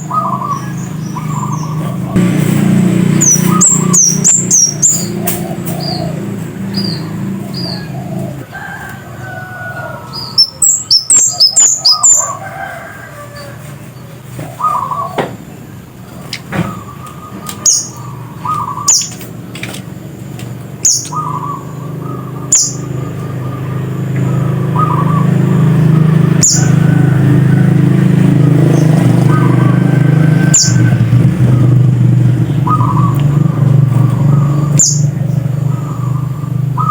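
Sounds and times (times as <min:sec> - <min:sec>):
bird giving high tsit calls: 0:00.0 - 0:08.4, 0:14.4 - 0:15.2, 0:16.2 - 0:19.4, 0:20.8 - 0:26.9
low engine-like hum: 0:00.0 - 0:36.9.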